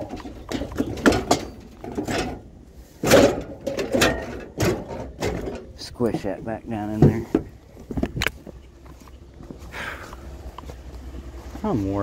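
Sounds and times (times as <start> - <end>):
objects knocking and clattering: 0.0 - 8.6.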